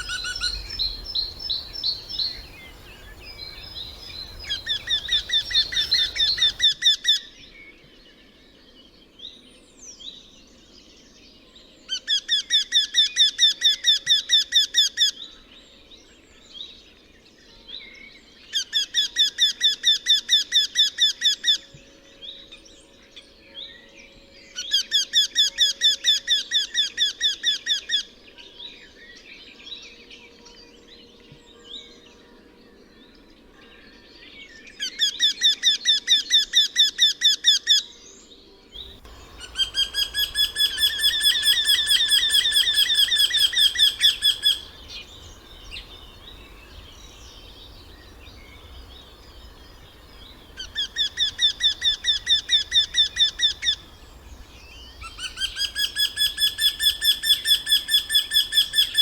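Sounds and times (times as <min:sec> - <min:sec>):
bird repeated squeaking calls: 0:00.0 - 0:06.6, 0:38.8 - 0:59.0.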